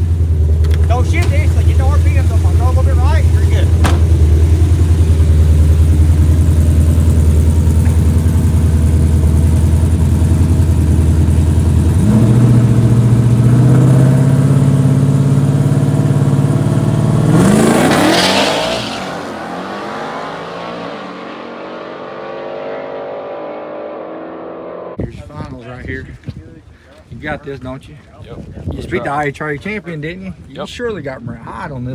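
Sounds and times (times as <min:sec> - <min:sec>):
drag race engines revving: 0:00.0 - 0:25.0
cars launching with loud burst: 0:00.7 - 0:06.8, 0:12.0 - 0:24.4.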